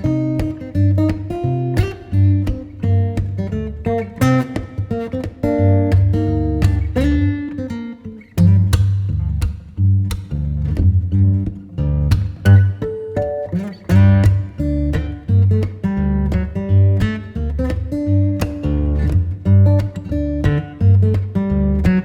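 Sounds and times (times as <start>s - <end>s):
bass line: 0.0s - 7.4s, 8.4s - 12.9s
acoustic guitar music: 0.0s - 22.0s.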